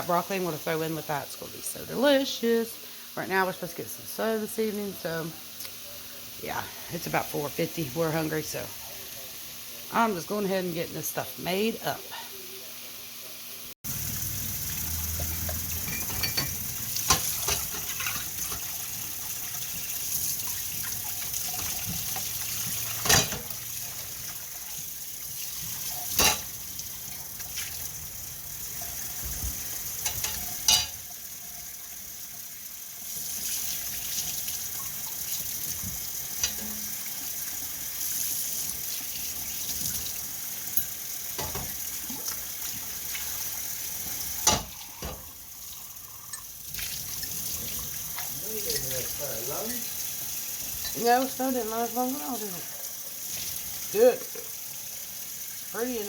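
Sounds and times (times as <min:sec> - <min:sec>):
cooking hiss: 0:00.0 - 0:56.0
utensils clanking on cookware: 0:15.2 - 0:18.8, 0:21.2 - 0:24.1, 0:25.9 - 0:26.5, 0:29.9 - 0:31.1, 0:36.3 - 0:37.0, 0:40.7 - 0:41.8, 0:44.4 - 0:45.3, 0:48.6 - 0:49.2, 0:50.8 - 0:51.2.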